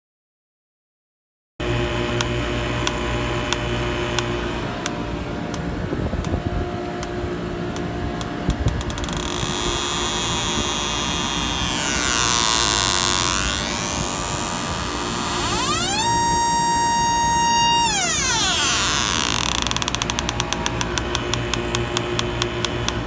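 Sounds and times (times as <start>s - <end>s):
chiller mechanical hum: 1.6s - 23.0s
regular ticking: 2.2s - 6.3s, 7.0s - 23.0s
quick run of clicks: 19.4s - 23.0s.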